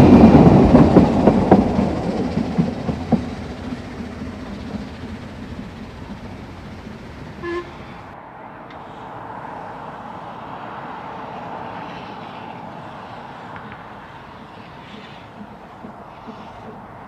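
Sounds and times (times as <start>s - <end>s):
train rumble: 0.0s - 17.0s
steam locomotive whistle toot: 5.6s - 8.2s.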